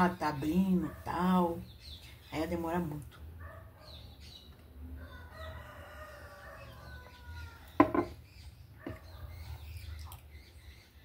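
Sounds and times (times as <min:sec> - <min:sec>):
sharp knock: 0:07.8 - 0:08.2.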